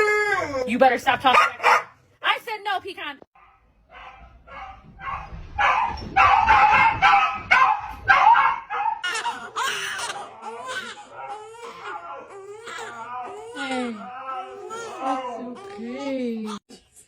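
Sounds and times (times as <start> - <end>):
dog barking and woofing: 1.3 - 2.0, 3.4 - 9.2.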